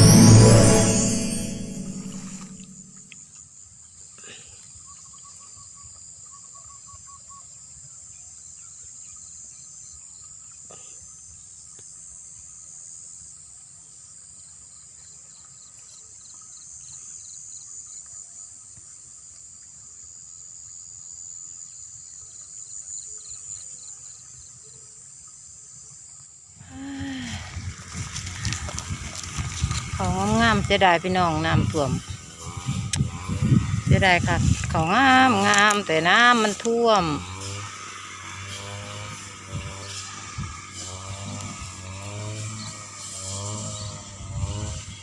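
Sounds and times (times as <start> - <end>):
crickets trilling: 25.1 - 44.9
insects buzzing: 26.1 - 45.0.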